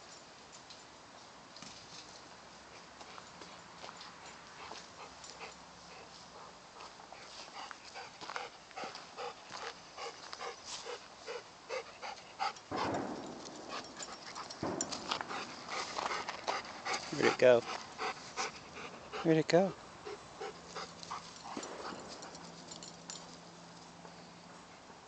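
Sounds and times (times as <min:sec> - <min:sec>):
dog panting: 0:04.2 - 0:23.4
rustling: 0:12.7 - 0:18.9.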